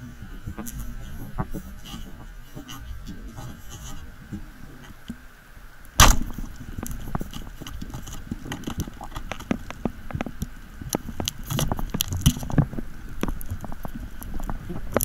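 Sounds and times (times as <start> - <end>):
underwater speargun shot crack: 6.0 - 6.5.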